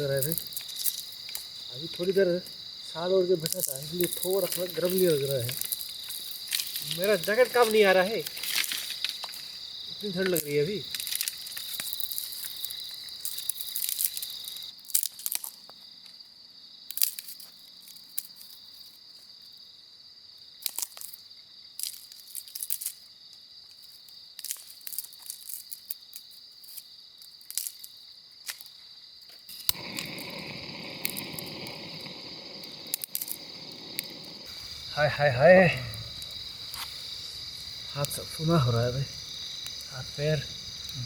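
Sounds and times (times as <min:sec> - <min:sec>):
crickets trilling: 0:00.0 - 0:41.0
handling cracks and rustles: 0:00.2 - 0:01.6, 0:03.4 - 0:16.2, 0:16.9 - 0:19.3, 0:20.6 - 0:21.2, 0:21.8 - 0:30.0.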